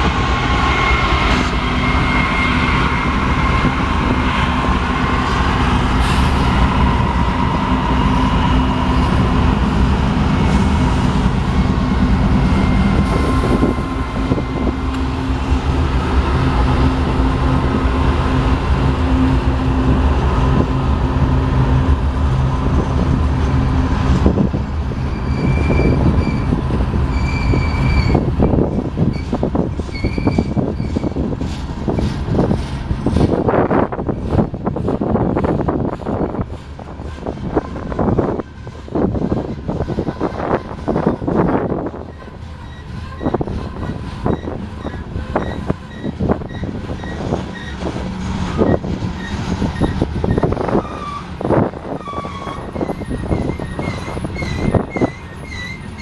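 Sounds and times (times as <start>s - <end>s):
freight train rumbling on rails: 0.0s - 56.0s
high wheel squeals: 25.0s - 31.2s, 42.0s - 56.0s.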